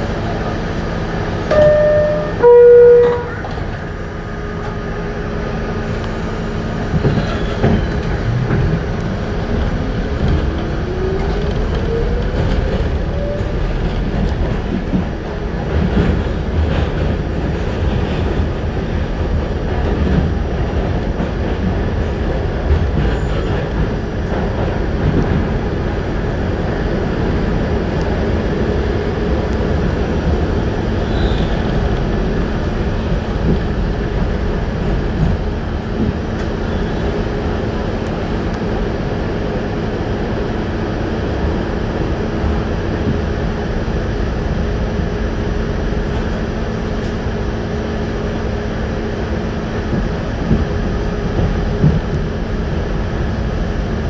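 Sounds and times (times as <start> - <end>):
train wheel and running noise: 0.0 - 54.0
two-tone chime: 1.5 - 3.4.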